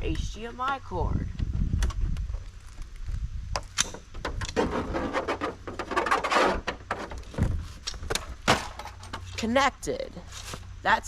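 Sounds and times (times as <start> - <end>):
breaking plastic and glass clatter: 8.4 - 9.3.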